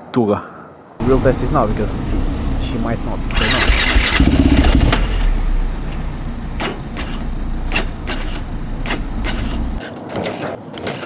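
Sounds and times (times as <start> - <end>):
motorcycle engine rumbling: 1.0 - 9.8
sharp clicks: 6.6 - 9.6.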